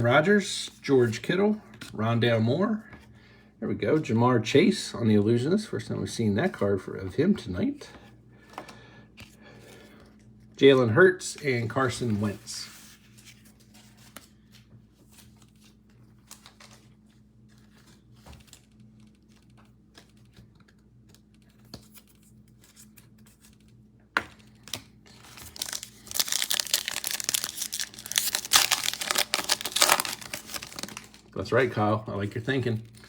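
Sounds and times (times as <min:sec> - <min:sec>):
foil wrapper tearing and crinkling: 0:24.6 - 0:31.3.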